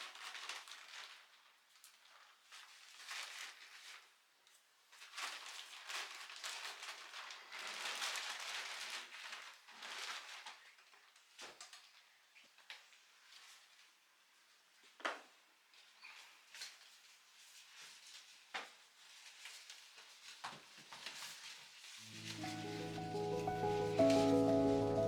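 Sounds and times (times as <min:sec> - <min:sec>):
packaging rustling and crinkling: 0:05.1 - 0:10.3.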